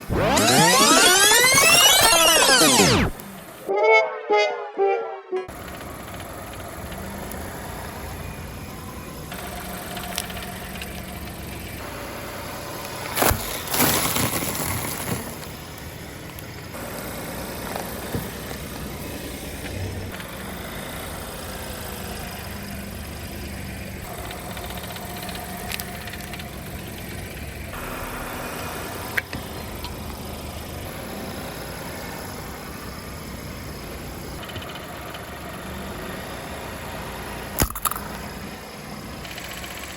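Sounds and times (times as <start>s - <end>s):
sharp clicks: 0.0s - 3.3s
noisy crackle: 0.0s - 3.7s
car engine idling: 5.5s - 39.9s.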